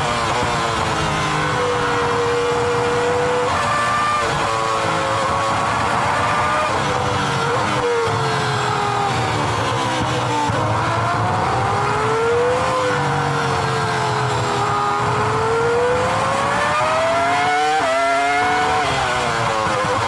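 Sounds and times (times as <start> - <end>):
racing car engine at speed: 0.0 - 20.0.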